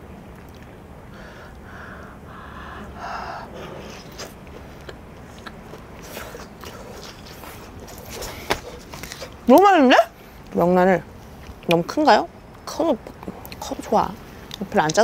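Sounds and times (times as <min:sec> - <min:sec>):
breaths: 0:01.1 - 0:04.0
close-miked chewing: 0:03.5 - 0:09.5.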